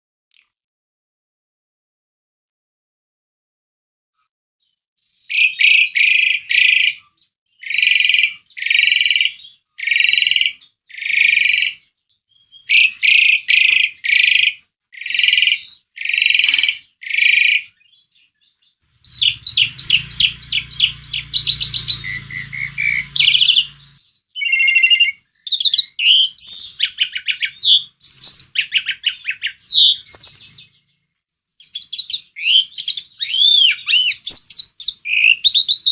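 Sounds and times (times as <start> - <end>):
low hum: 18.9 - 24.0
starling harsh calls: 18.9 - 25.1
starling chattering and whistling: 19.0 - 24.9.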